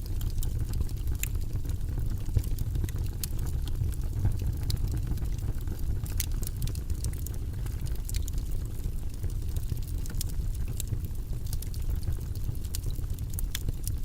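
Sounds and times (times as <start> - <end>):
fire flames rumbling: 0.0 - 14.0
wood fire crackling and popping: 0.0 - 14.0.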